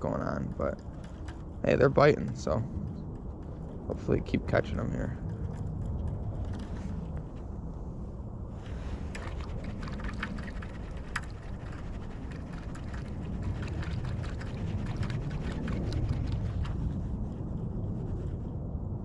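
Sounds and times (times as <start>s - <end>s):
wind rumble: 0.0s - 19.0s
creek water: 8.6s - 17.0s.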